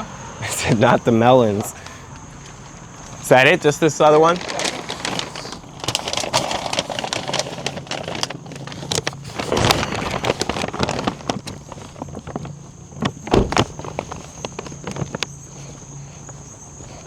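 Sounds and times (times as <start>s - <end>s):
handling knocks and clicks: 10.5s - 15.4s
loud thump: 13.3s - 13.9s.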